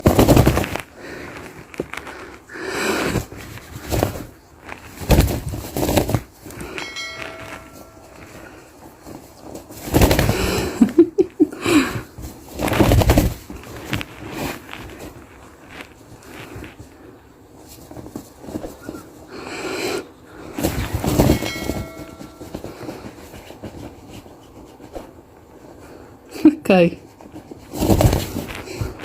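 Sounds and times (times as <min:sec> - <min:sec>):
bell-like ring: 0:06.7 - 0:08.6, 0:21.2 - 0:23.0.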